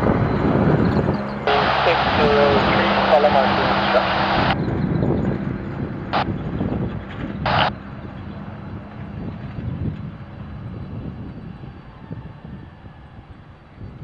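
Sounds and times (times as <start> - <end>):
jet engines rumbling: 0.0 - 14.0
radio static bursts: 1.5 - 4.6, 7.4 - 7.7.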